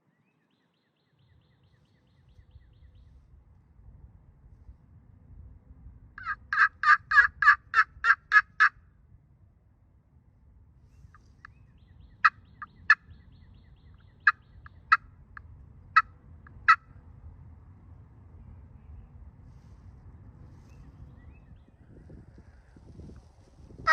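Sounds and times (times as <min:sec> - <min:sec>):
turkey clucks: 0:06.2 - 0:08.7, 0:12.2 - 0:13.1, 0:14.0 - 0:15.1, 0:16.0 - 0:16.8
wild turkey yelps: 0:06.2 - 0:08.8, 0:11.1 - 0:13.4, 0:14.0 - 0:15.1, 0:16.0 - 0:16.8.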